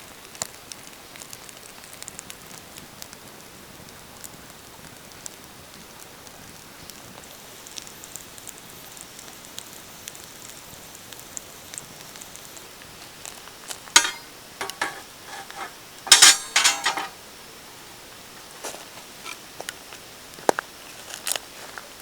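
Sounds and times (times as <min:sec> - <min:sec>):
wood fire crackling: 0:00.0 - 0:17.4.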